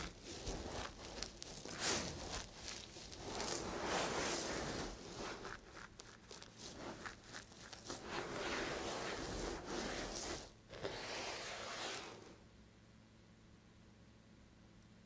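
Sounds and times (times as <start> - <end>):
knife cutting dry soap: 0.0 - 12.3.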